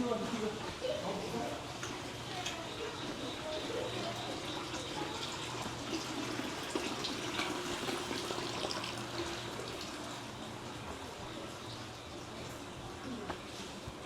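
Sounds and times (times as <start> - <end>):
water running and splashing: 1.4 - 13.8.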